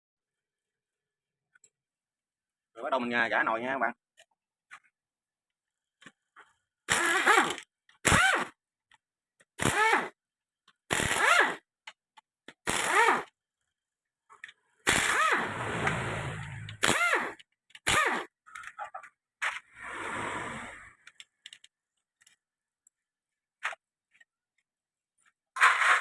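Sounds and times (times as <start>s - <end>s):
pneumatic air tool bursts: 6.9s - 8.6s, 9.6s - 10.2s, 10.9s - 11.7s, 12.6s - 13.4s, 14.8s - 18.4s.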